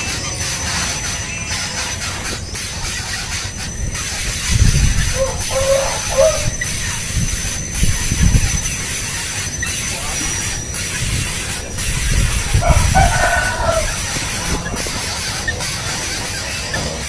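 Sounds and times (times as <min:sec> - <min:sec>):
steady outdoor hiss: 0:00.0 - 0:17.0
low rumbling bursts: 0:01.8 - 0:17.0.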